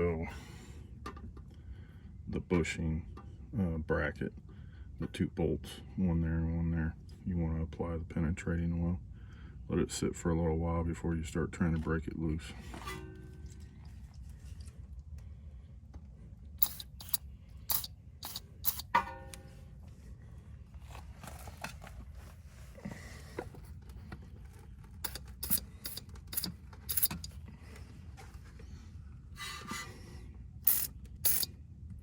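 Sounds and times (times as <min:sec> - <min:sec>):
metal parts clinking and scraping: 0:16.6 - 0:19.0, 0:25.0 - 0:27.4, 0:30.7 - 0:31.5.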